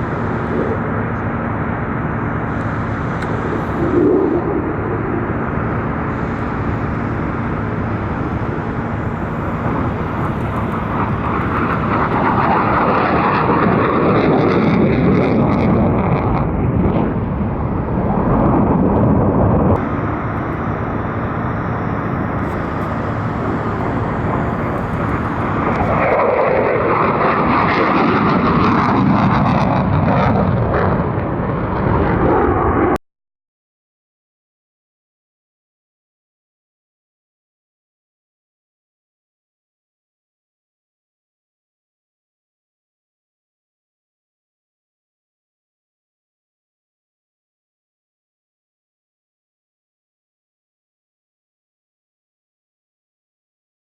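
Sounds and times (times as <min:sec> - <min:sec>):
fighter jet roaring past: 0:00.0 - 0:33.0.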